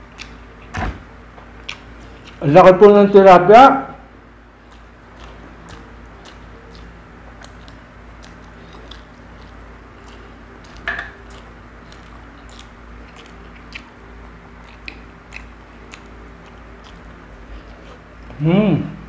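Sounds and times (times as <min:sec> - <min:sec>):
person chewing food: 0:00.0 - 0:00.7, 0:01.4 - 0:02.4, 0:04.5 - 0:18.4
small mouth clicks: 0:00.1 - 0:00.4, 0:01.6 - 0:02.4, 0:04.7 - 0:13.9, 0:14.6 - 0:17.1
wet mouth smacks: 0:04.7 - 0:13.9, 0:14.6 - 0:16.1.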